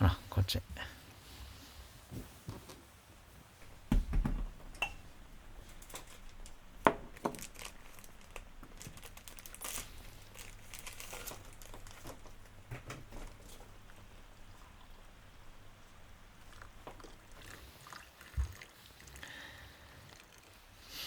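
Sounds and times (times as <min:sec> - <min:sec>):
dishes knocking and clicking: 0:03.9 - 0:05.1
wrapper crinkling and tearing: 0:05.9 - 0:12.6.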